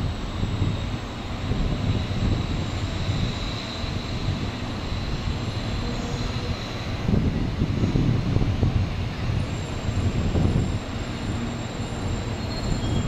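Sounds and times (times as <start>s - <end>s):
train rumbling as it brakes: 0.0s - 13.0s
thin high whine: 9.3s - 13.0s.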